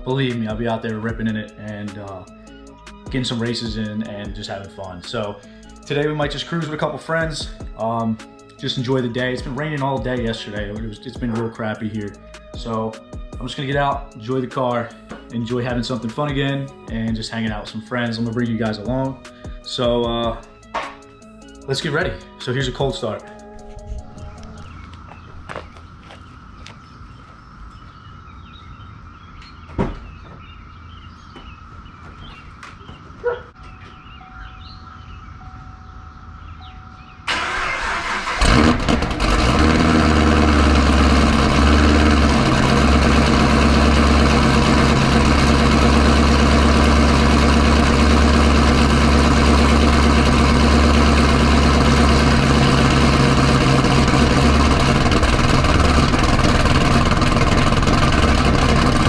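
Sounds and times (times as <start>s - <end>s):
car engine starting and idling: 36.4s - 59.0s
starter cranking: 37.3s - 59.0s.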